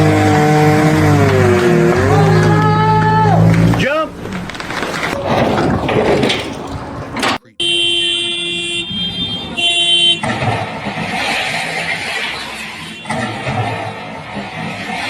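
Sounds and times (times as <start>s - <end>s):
vehicle horn: 7.5s - 10.4s, 12.7s - 13.5s.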